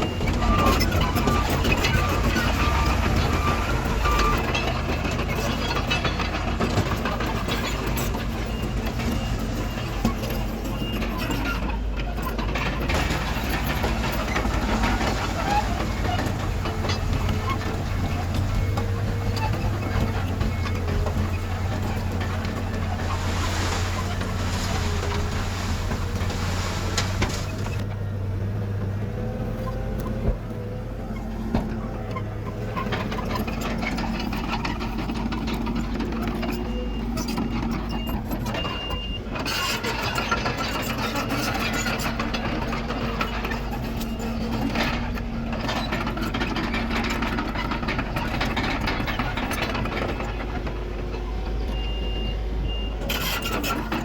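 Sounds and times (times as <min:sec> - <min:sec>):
reversing alarm beeping: 0:00.0 - 0:06.2
diesel engines of heavy machinery: 0:00.0 - 0:54.0.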